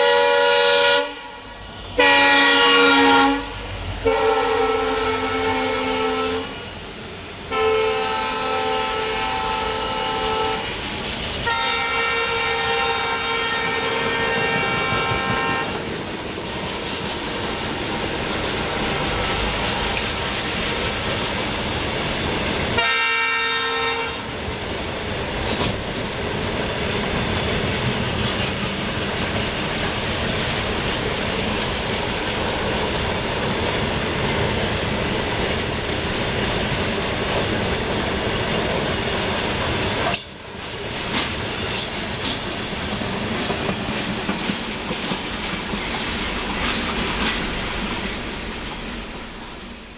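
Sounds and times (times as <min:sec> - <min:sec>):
multi-note air horn: 0:00.0 - 0:01.4, 0:02.0 - 0:06.5, 0:07.5 - 0:10.7, 0:11.5 - 0:15.8, 0:22.8 - 0:24.3
diesel locomotives passing: 0:00.0 - 0:49.9.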